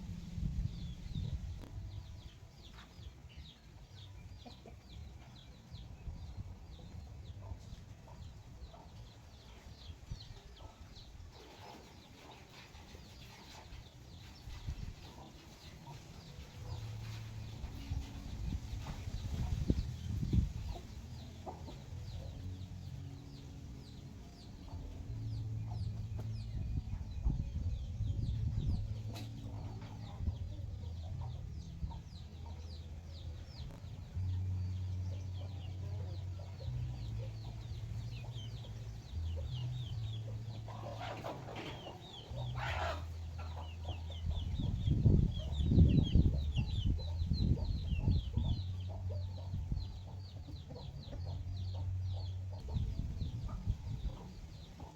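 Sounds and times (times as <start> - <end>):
low rumble: 0.0 - 2.7, 16.7 - 40.9, 42.3 - 54.7
chicks peeping: 0.1 - 54.9
chickens clucking: 0.6 - 54.9.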